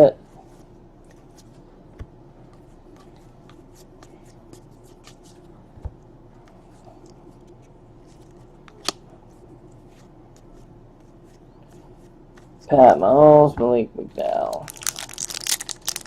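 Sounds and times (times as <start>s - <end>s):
trading cards rustling: 14.3s - 16.0s.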